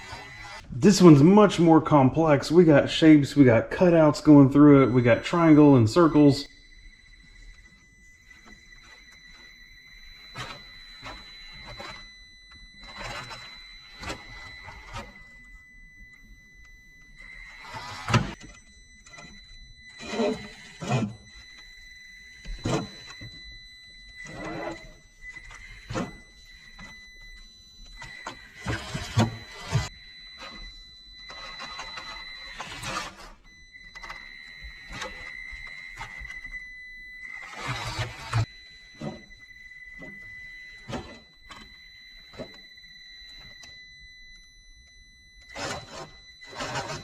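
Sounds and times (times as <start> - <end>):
small electric motor whine: 0.0 - 0.7, 6.2 - 47.0.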